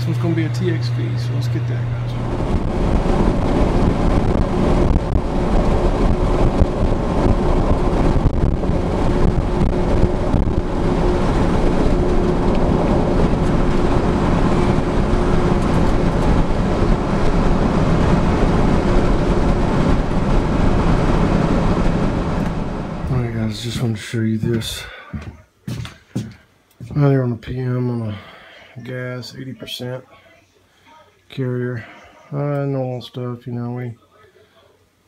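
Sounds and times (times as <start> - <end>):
loud low mechanical rumble: 0.0 - 25.2
faint steady hum: 0.0 - 35.0.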